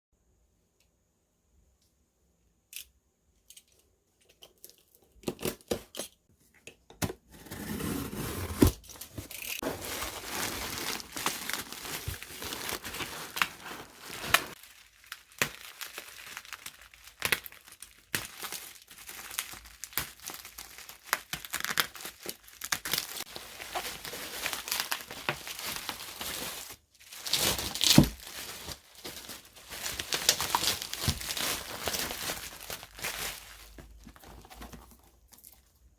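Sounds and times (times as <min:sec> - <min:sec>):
packaging crinkling and tearing: 0:07.8 - 0:35.7.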